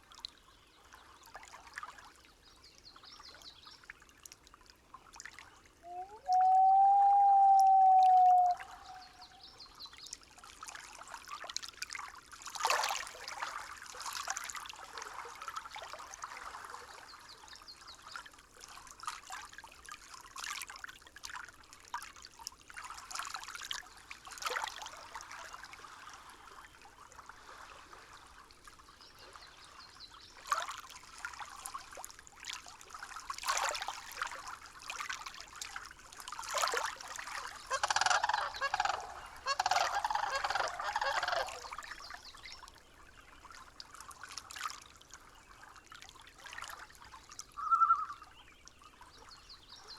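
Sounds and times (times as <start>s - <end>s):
water trickling and babbling: 0.0s - 49.9s.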